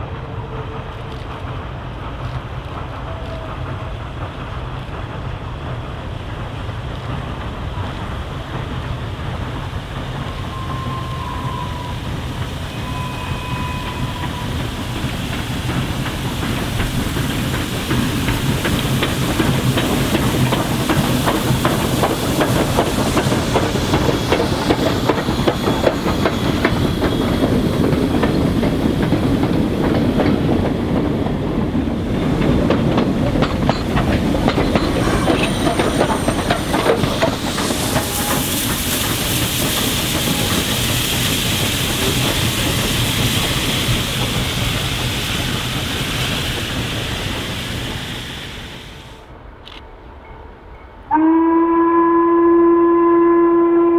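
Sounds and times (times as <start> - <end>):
train wheels clattering over rail joints: 14.0 - 48.8.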